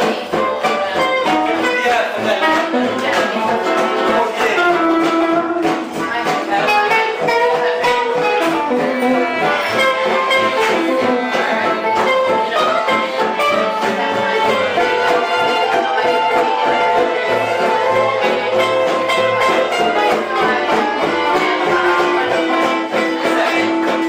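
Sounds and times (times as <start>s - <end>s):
live band playing gypsy music: 0.0s - 24.0s.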